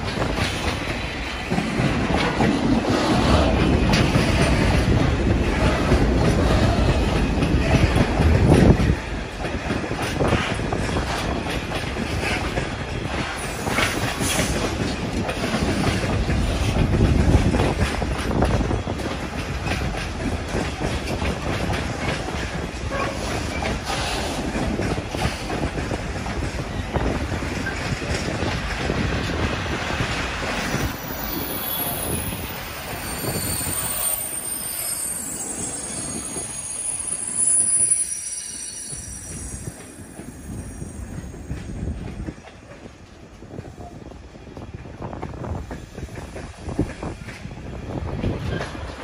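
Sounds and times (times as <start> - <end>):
wheels clacking over rail joints: 0.0 - 37.5
train wheels rumbling on rail: 0.0 - 49.0.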